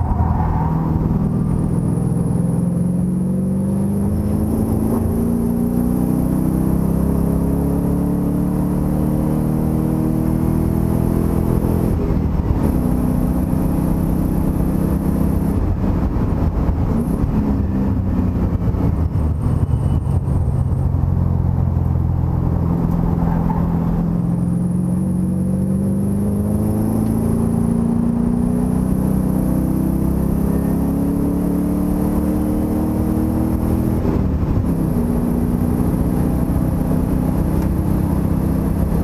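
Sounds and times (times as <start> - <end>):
race car engine running hard: 0.3 - 39.0.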